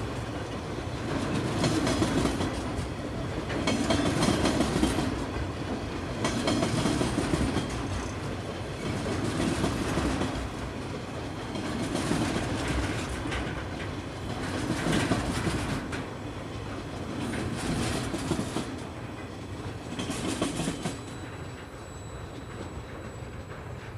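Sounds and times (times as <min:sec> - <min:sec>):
train wheels clattering over rail joints: 0:00.0 - 0:23.9.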